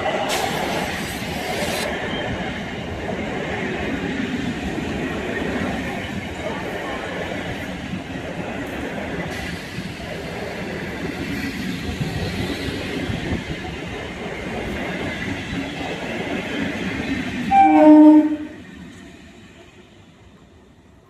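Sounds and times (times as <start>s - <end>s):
train rumbling past: 0.0s - 21.0s
train horn blast: 17.5s - 18.6s.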